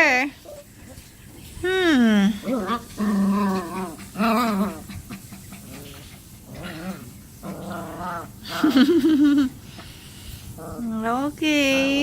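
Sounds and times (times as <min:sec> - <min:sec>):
puppies whimpering and growling: 0:02.1 - 0:08.8.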